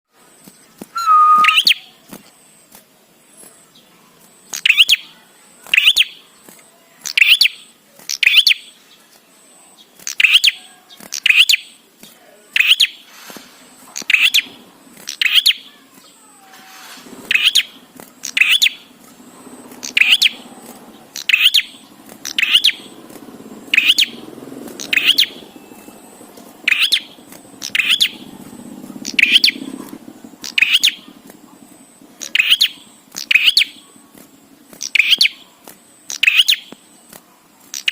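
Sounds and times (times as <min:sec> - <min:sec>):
faint low hum: 0:00.2 - 0:37.9
bird calling sharp notes: 0:00.9 - 0:02.0, 0:04.5 - 0:05.1, 0:07.0 - 0:08.7, 0:10.0 - 0:11.8, 0:12.5 - 0:37.1.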